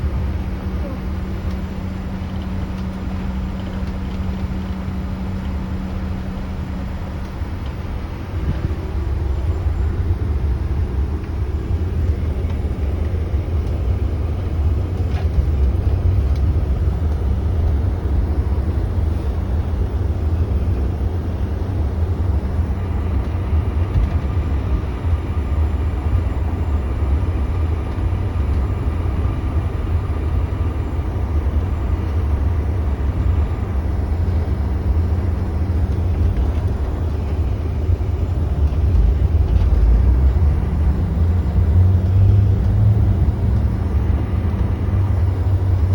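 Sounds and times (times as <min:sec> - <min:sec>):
jet engines rumbling in cabin: 0:00.0 - 0:45.9.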